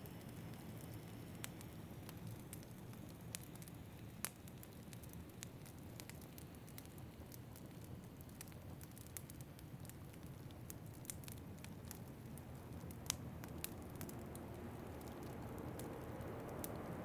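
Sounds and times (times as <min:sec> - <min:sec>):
wood fire crackling: 0:00.0 - 0:17.0
low rush of wind: 0:12.6 - 0:17.0.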